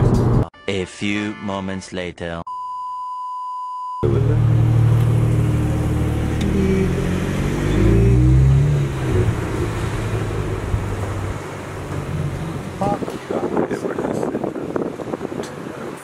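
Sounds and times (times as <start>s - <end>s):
high test-card beep: 2.5s - 4.0s
car engine running: 4.0s - 15.2s.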